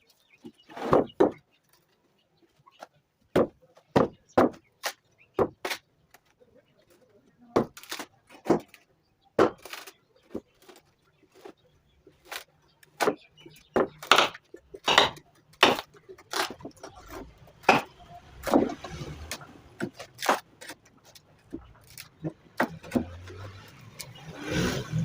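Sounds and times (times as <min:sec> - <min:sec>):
sharp wooden knocks and clacks: 0:03.3 - 0:05.8, 0:13.0 - 0:23.4.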